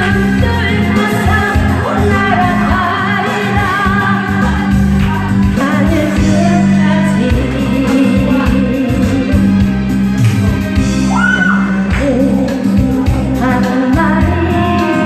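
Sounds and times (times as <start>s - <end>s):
person singing: 0.0s - 9.8s, 10.4s - 15.0s
music accompaniment with bass: 0.0s - 15.0s.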